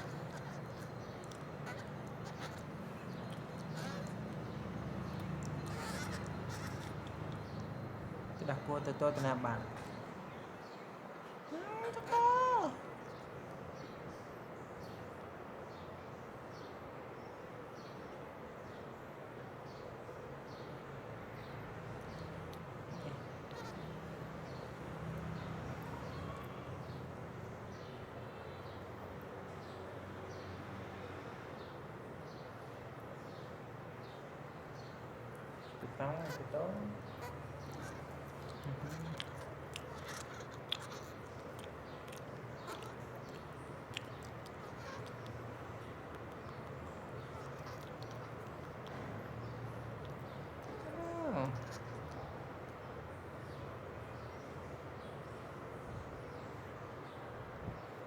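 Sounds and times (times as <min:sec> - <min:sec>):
bird chirping: 0:00.0 - 0:15.9, 0:20.5 - 0:28.9, 0:33.2 - 0:58.0.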